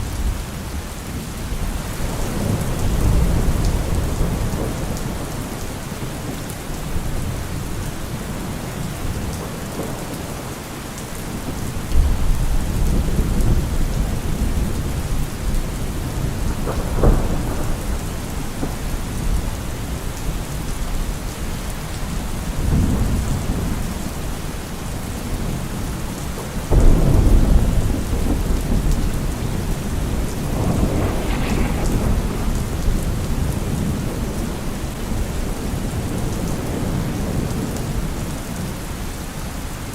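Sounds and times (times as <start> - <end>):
heavy rain on car roof: 0.0 - 39.9
thunder rumbling: 11.2 - 21.3, 22.3 - 38.7.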